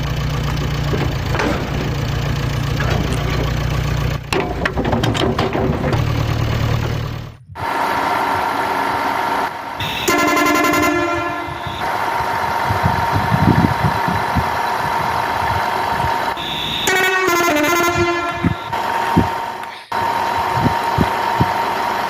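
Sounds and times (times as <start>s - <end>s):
low knocks: 0.4s - 7.3s
toy tractor electronic horn: 9.8s - 13.5s, 16.4s - 19.3s.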